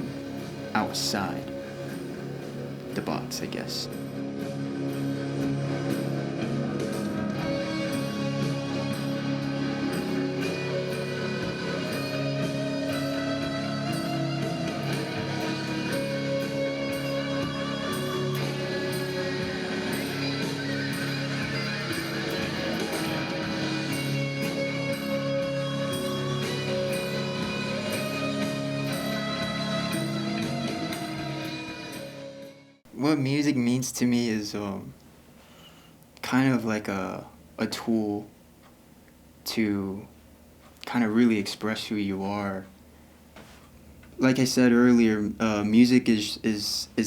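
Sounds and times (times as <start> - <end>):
guitar-led instrumental music: 0.0 - 32.8.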